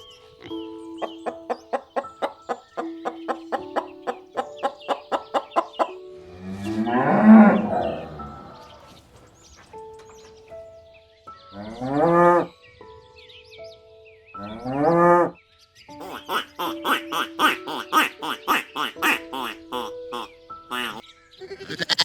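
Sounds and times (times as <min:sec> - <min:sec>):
background music: 0:00.0 - 0:22.0.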